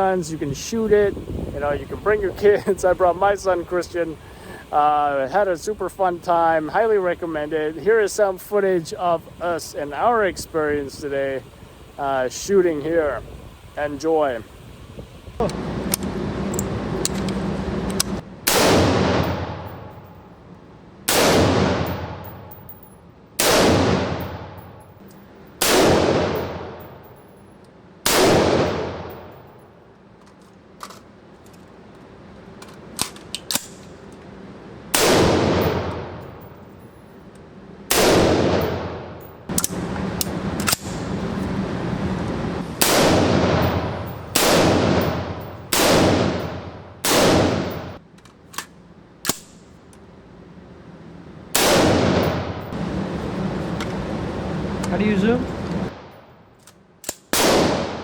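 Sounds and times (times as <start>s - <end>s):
gunshots: 18.5s - 19.9s, 21.1s - 22.5s, 23.4s - 24.6s, 25.6s - 27.0s, 28.1s - 29.3s, 34.9s - 36.4s, 37.9s - 39.2s, 42.8s - 48.0s, 51.6s - 52.8s, 57.3s - 58.0s.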